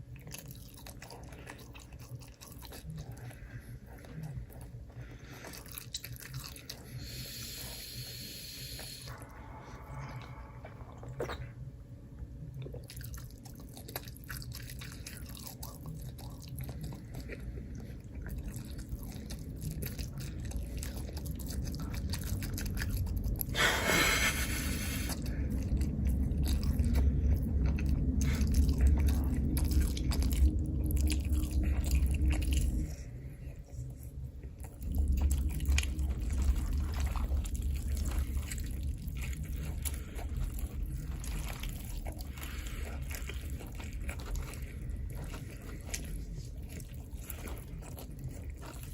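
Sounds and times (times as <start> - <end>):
close chewing and crunching: 0.0 - 48.9
low hum: 0.0 - 48.9
wet mouth clicks: 10.2 - 11.6.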